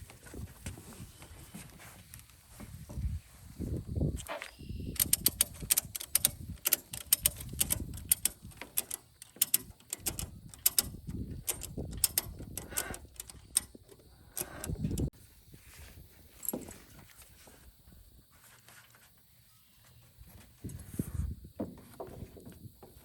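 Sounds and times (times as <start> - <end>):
ratchet strap clicks: 5.0 - 15.1
handling and rustling: 5.2 - 23.0.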